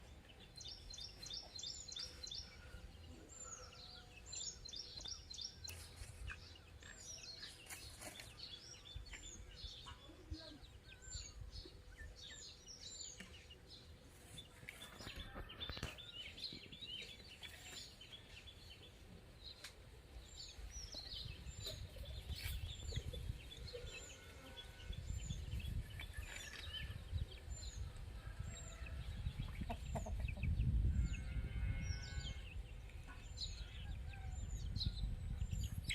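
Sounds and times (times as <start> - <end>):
small birds chirping: 0.0 - 35.9
wind on microphone rumble: 20.7 - 35.9.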